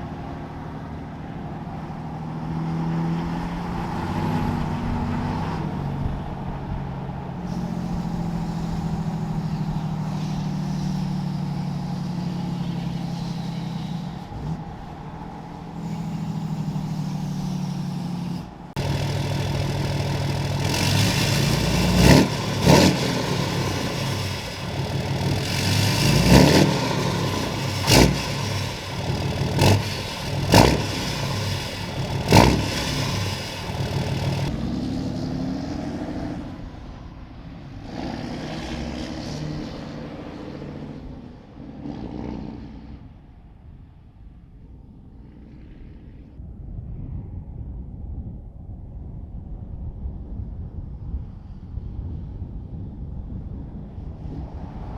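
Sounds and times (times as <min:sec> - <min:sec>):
diesel engine running loud: 0:15.8 - 0:34.5
sharp exhaust bangs: 0:17.2 - 0:34.5.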